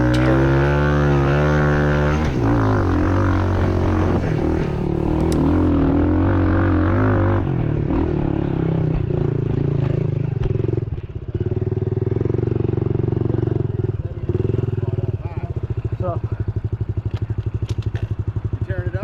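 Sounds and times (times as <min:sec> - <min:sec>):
motorbike engine revving: 0:00.0 - 0:05.7.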